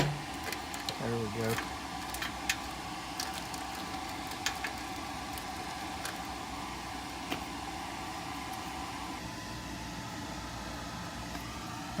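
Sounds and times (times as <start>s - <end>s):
clicks of wiring being handled: 0.0s - 6.3s
steady background hum: 0.0s - 12.0s.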